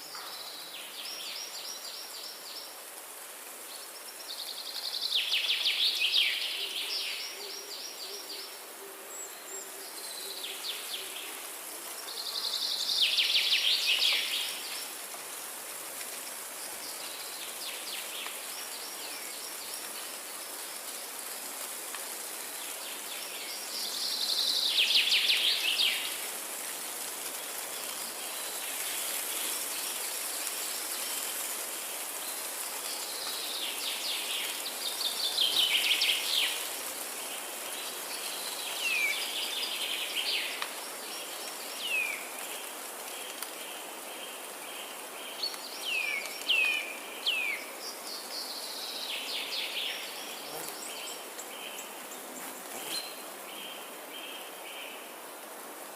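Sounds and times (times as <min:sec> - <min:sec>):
steady hiss: 0:00.0 - 0:55.9.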